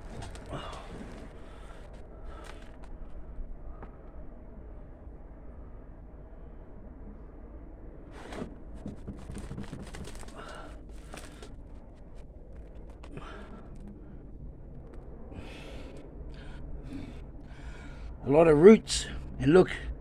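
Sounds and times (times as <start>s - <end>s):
soil and roots crackling: 0.0s - 3.3s, 8.6s - 20.0s
wind rumble on microphone: 0.0s - 20.0s.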